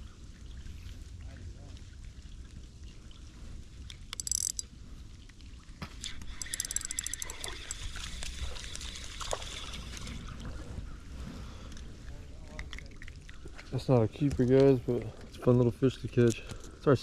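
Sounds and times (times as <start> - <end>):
rain: 0.0 - 6.2
trickling splashing water: 1.2 - 10.4, 11.7 - 17.0
rapid high clicking: 4.2 - 4.6, 6.4 - 7.8.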